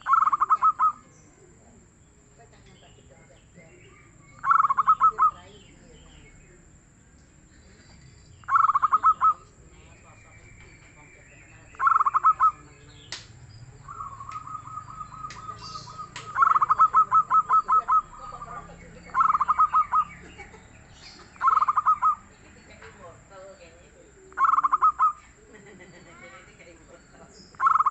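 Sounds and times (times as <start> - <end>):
dove cooing in staccato bursts: 0.0 - 1.1, 4.0 - 5.6, 8.4 - 9.4, 11.8 - 12.7, 13.9 - 20.6, 21.3 - 22.4, 24.4 - 25.2, 27.6 - 27.9.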